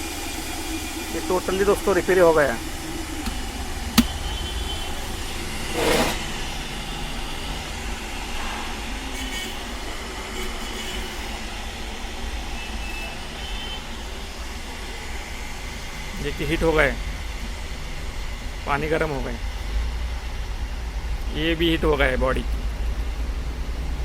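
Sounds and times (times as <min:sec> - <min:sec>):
water boiling in kettle: 0:00.0 - 0:06.2.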